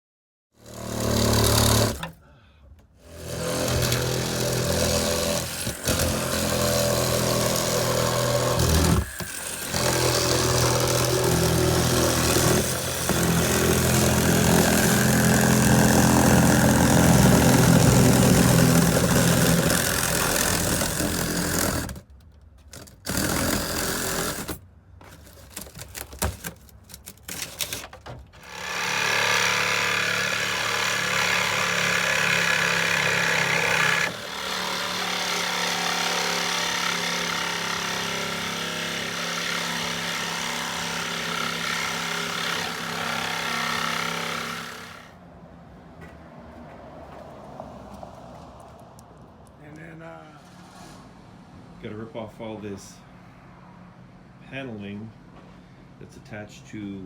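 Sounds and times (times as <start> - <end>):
electric power tool running: 0.6 - 2.1, 3.1 - 22.0, 23.1 - 24.6, 28.4 - 45.1.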